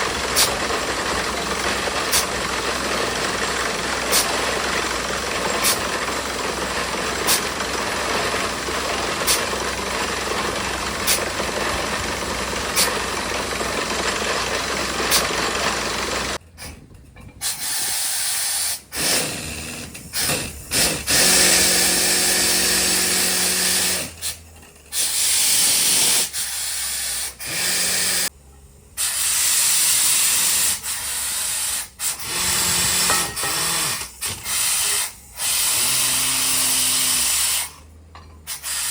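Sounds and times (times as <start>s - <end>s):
drilling rig running: 0.0s - 28.3s, 29.0s - 38.9s
compressed air hiss: 17.4s - 19.3s, 25.0s - 28.1s, 29.0s - 37.8s, 38.5s - 38.9s.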